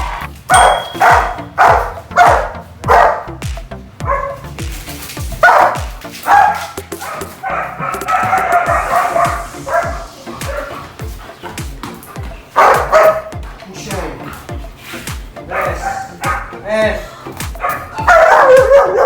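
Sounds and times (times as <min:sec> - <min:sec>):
music with bass-heavy beat: 0:00.0 - 0:19.0
dog barking: 0:00.5 - 0:03.4, 0:04.0 - 0:04.5, 0:05.4 - 0:13.5, 0:15.4 - 0:19.0.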